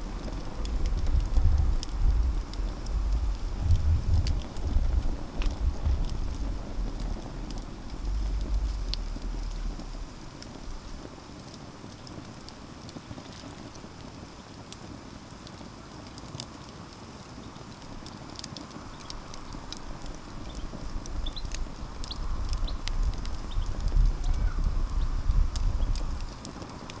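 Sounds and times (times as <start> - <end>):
low rumble: 0.0 - 11.2
campfire crackling and popping: 0.0 - 27.0.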